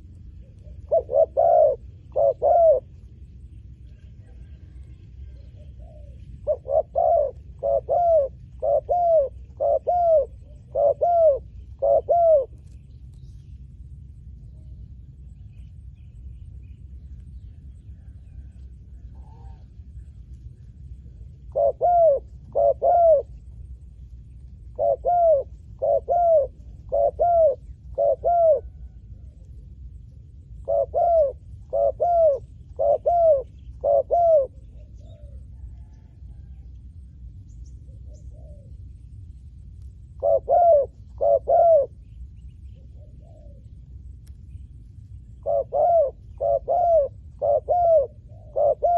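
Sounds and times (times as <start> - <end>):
dove cooing: 0.0 - 3.2, 3.9 - 12.8, 18.0 - 20.4, 21.0 - 23.6, 24.6 - 36.6, 37.8 - 38.9, 40.0 - 43.9, 45.2 - 48.9.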